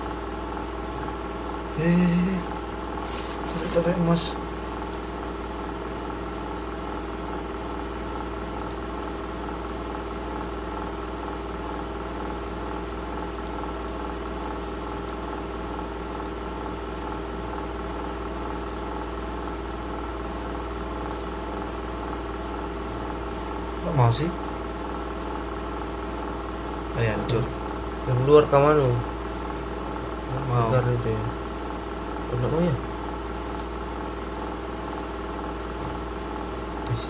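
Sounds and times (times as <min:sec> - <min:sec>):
mechanical hum: 0:00.0 - 0:37.0
faint short clicks: 0:08.6 - 0:08.8, 0:33.4 - 0:33.7.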